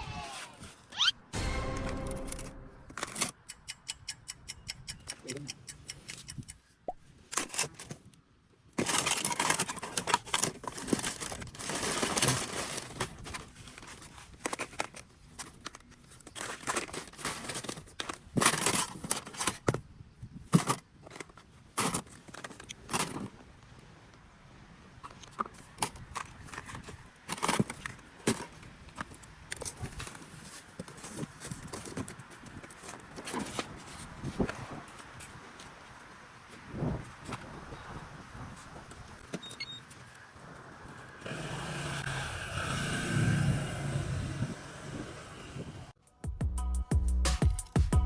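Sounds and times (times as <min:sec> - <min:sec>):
scraping and crinkling: 0:07.2 - 0:23.5, 0:25.0 - 0:35.8.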